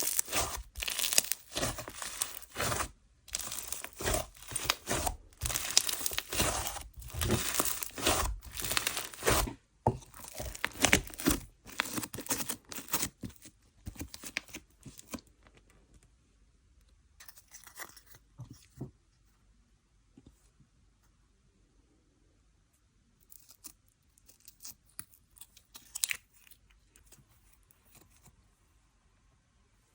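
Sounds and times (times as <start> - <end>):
slime crackling and popping: 0.0 - 13.0.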